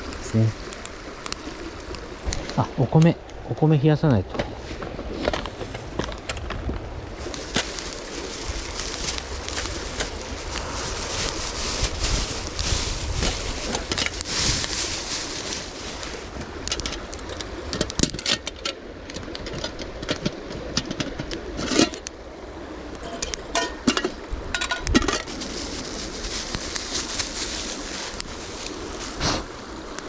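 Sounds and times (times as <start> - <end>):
river rushing: 0.0 - 30.0
camp gear clicking and knocking: 16.3 - 22.1, 23.0 - 25.5.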